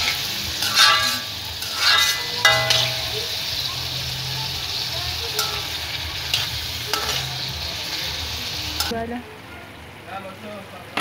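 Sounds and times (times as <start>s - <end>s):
metal spatula clicking on pan: 0.0s - 3.6s, 5.3s - 7.3s
liver sizzling in hot oil: 0.0s - 9.0s.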